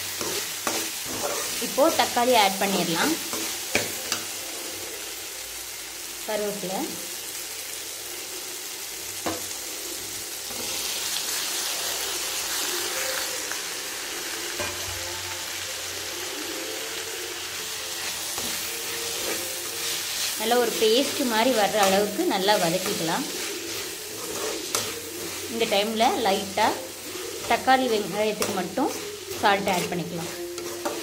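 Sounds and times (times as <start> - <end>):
metal spatula scraping and stirring: 0.0 - 5.1, 9.2 - 11.6, 17.6 - 31.0
onions sizzling in hot oil: 0.0 - 31.0.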